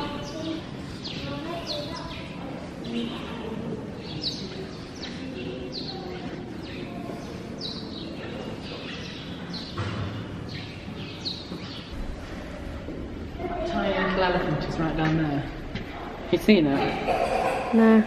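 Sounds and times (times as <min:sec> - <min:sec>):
small birds chirping: 0:00.0 - 0:12.6
steady background noise: 0:00.0 - 0:18.0.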